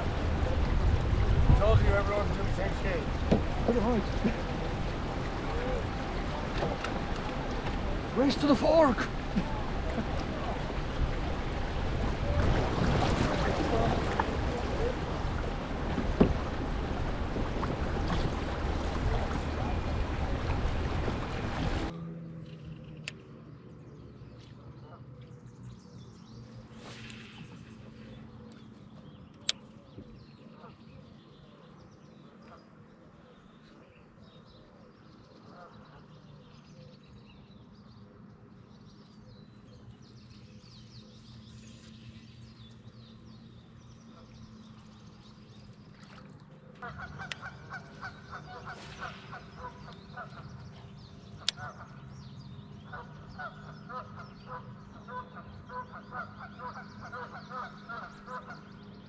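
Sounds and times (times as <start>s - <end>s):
wind on microphone: 0.0s - 8.2s, 9.2s - 21.9s
water rushing past kayak: 0.0s - 21.9s, 47.7s - 50.5s
steady low hum: 0.0s - 59.0s
birds chirping: 1.5s - 59.0s.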